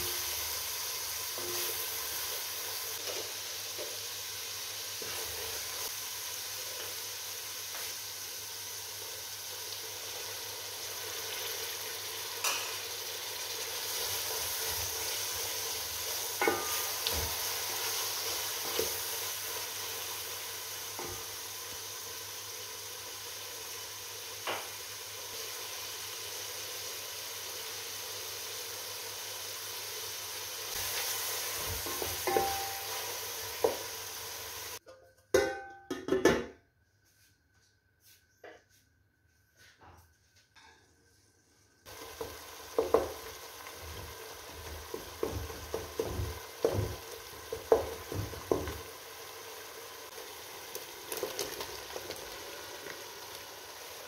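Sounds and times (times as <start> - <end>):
vegetables sizzling in oil: 0.0 - 34.8, 41.8 - 54.0
wooden spoon knocking pot: 44.9 - 48.8.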